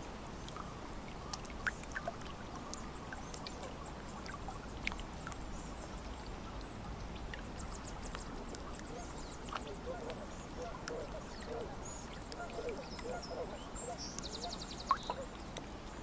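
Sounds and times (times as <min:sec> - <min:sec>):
lake water lapping on shore: 0:00.0 - 0:16.0
faint bird calls: 0:07.5 - 0:15.6.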